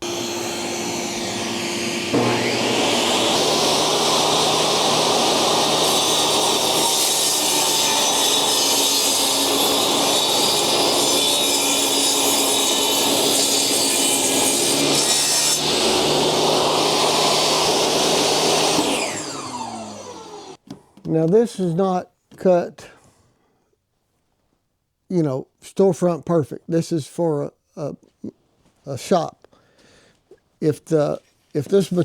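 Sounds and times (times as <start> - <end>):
power tool motor cutting wood: 0.0 - 20.6.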